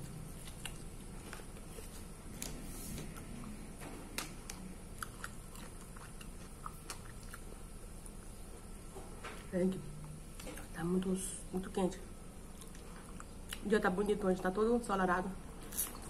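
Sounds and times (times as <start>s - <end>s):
person chewing chicken: 0.0s - 2.1s, 4.4s - 8.2s.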